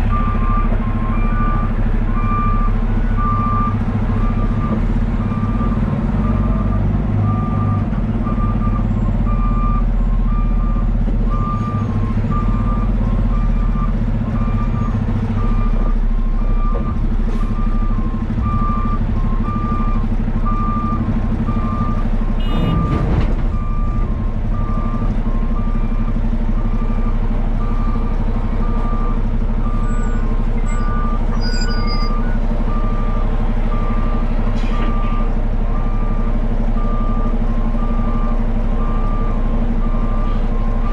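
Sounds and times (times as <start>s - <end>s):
diesel engine running: 0.0s - 40.9s
backup alarm beeping: 17.6s - 26.1s.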